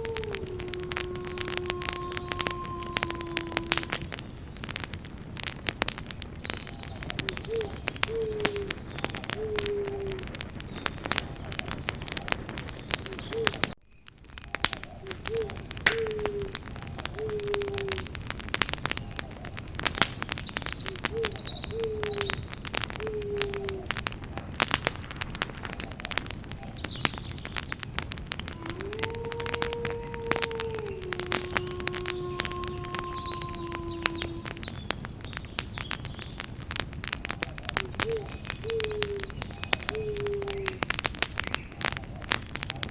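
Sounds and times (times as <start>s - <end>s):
bird cooing: 0.0s - 4.1s, 6.8s - 10.3s, 11.4s - 13.7s, 14.9s - 18.0s, 20.8s - 23.9s, 28.6s - 34.8s, 37.7s - 40.8s
campfire crackling and popping: 0.0s - 42.9s.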